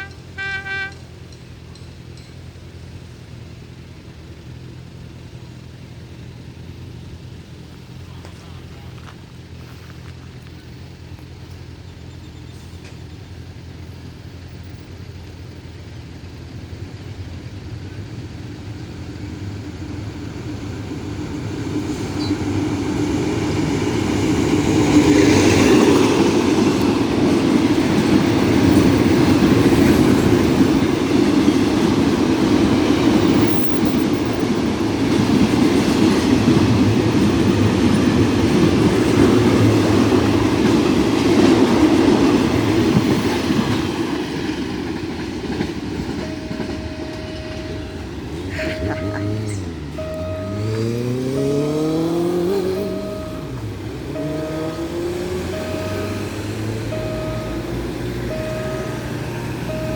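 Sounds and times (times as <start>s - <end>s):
train wheels clattering on rails: 0.0s - 3.8s, 16.3s - 59.9s
train rumbling: 0.0s - 59.9s.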